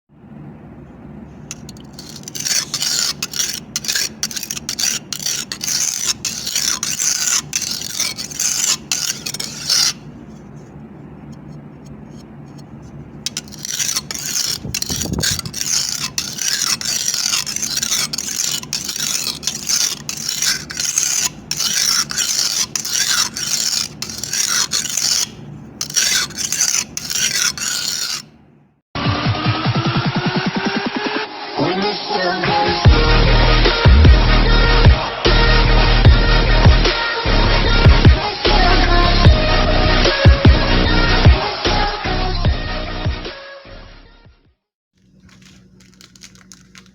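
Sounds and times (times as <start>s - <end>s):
knife scraping on sharpener: 1.4s - 28.4s, 45.0s - 46.9s.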